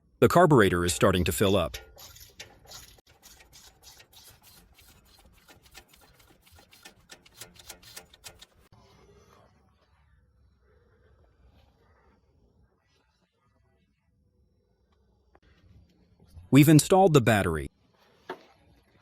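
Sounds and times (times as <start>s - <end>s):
fuel pump lever clicking: 5.4s - 8.7s.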